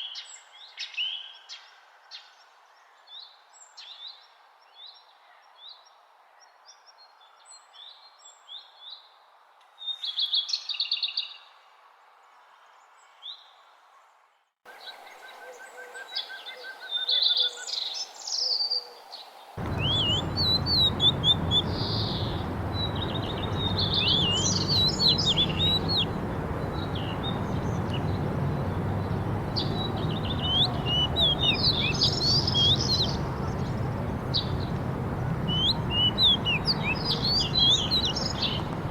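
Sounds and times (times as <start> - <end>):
songbirds chirping and singing: 19.6 - 38.9
steady rushing noise: 19.6 - 38.9.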